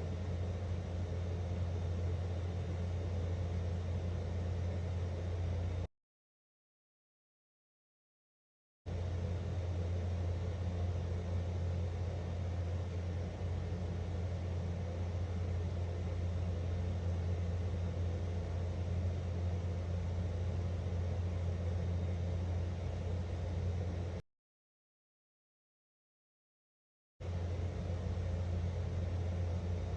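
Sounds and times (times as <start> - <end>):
steady low hum: 0.0 - 5.9, 8.9 - 24.2, 27.2 - 29.9.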